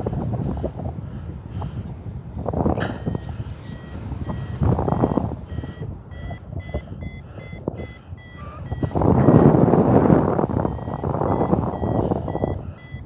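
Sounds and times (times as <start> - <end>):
wind gusts on microphone: 0.0 - 13.0
rapid electronic beeps: 2.8 - 9.7, 10.6 - 13.0.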